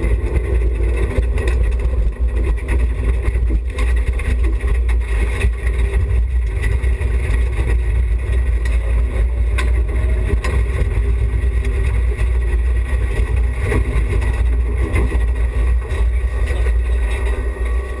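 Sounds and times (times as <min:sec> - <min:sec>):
car engine running: 0:00.0 - 0:18.0
road and body noise rumble: 0:00.0 - 0:18.0.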